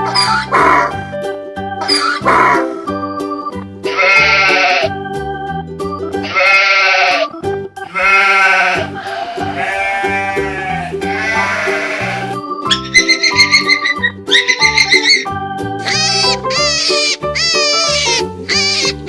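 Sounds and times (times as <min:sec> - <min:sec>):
sheep bleating: 0:00.0 - 0:01.0, 0:01.8 - 0:02.8, 0:03.9 - 0:04.9, 0:06.3 - 0:07.3, 0:07.9 - 0:12.4
children's tune: 0:00.0 - 0:07.2, 0:07.8 - 0:19.0.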